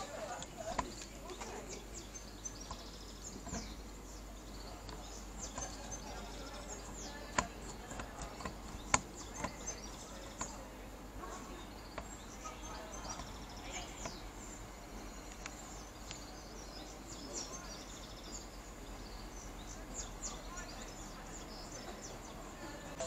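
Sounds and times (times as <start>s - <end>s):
faint low hum: 0.0s - 23.0s
small birds chirping: 0.0s - 23.0s
sharp clicks: 6.8s - 10.6s, 15.2s - 16.3s.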